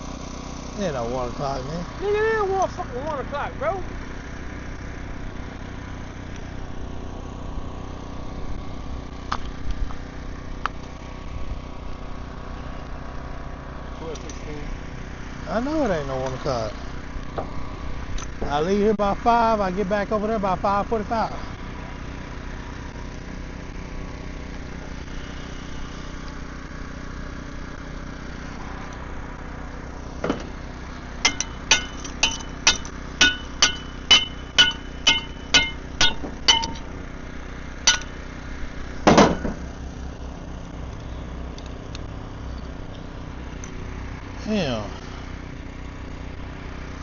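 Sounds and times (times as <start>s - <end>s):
steady low hum: 0.0s - 47.0s
hammer striking steel: 31.2s - 36.9s, 37.9s - 38.2s.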